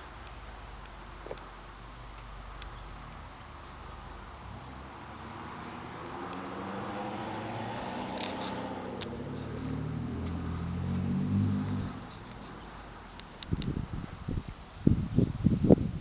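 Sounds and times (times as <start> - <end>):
motor vehicle engine running: 0.0 - 14.6
light clicks: 8.1 - 9.2, 12.1 - 13.7.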